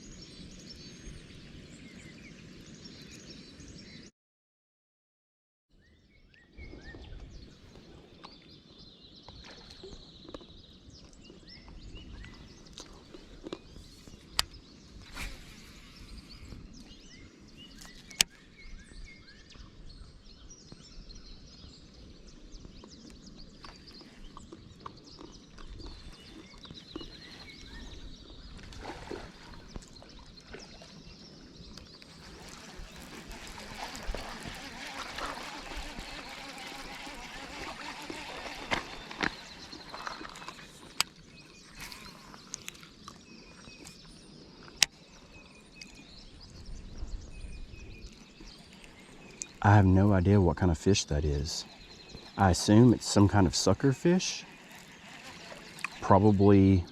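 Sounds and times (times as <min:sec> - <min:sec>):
birds chirping: 0:05.8 - 0:56.9
low rumble of wind: 0:38.2 - 0:55.2.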